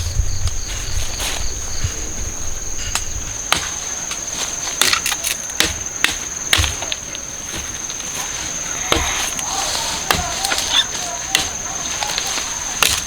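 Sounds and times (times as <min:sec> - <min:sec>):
insect chirring: 0:00.0 - 0:13.0
sharp knocks: 0:08.8 - 0:13.0.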